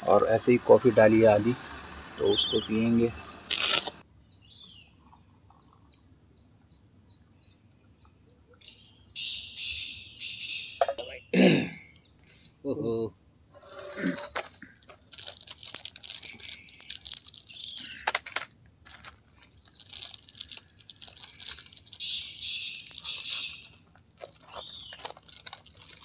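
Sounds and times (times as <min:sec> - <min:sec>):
crunching and chewing food: 0:03.5 - 0:04.0, 0:14.0 - 0:26.0.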